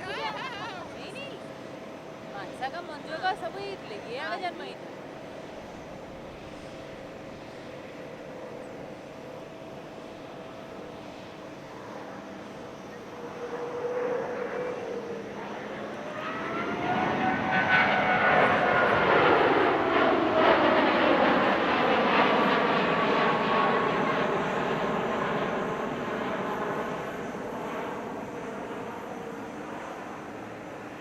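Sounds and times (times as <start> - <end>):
jet airliner flying past: 0.0 - 31.0.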